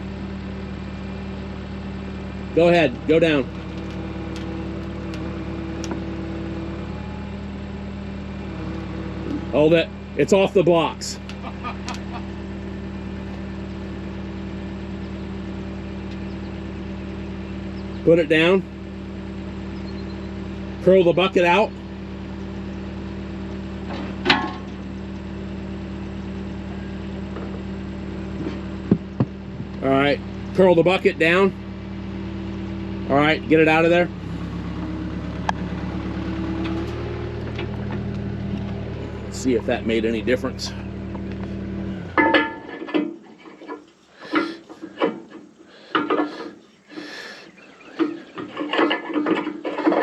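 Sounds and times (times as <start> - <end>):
diesel engine idling: 0.0 - 50.0
metal knocks and scrapes: 23.9 - 24.8, 42.1 - 46.6, 48.0 - 50.0
sharp metal clank: 42.2 - 43.0.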